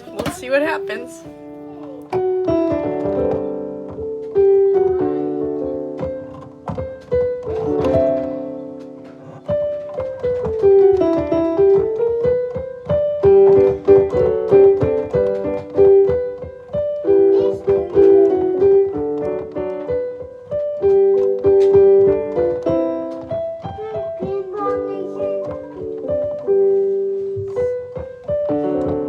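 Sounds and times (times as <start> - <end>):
piano music: 0.0 - 29.0.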